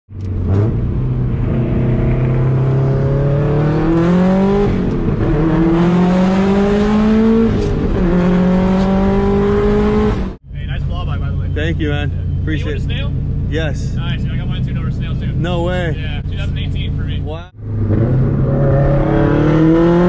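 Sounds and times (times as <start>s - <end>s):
car engine accelerating through gears: 0.1s - 10.4s, 17.6s - 20.0s.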